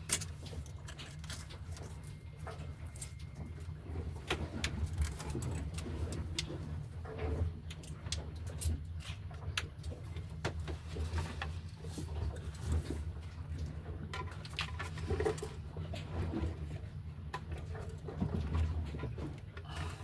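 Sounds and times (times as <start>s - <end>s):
light clicks and knocks of parts: 0.0s - 3.4s.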